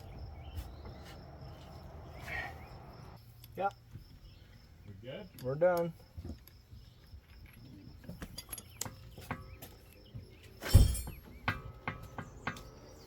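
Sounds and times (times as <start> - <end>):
metal tools clinking: 7.2 - 9.2, 10.6 - 11.4.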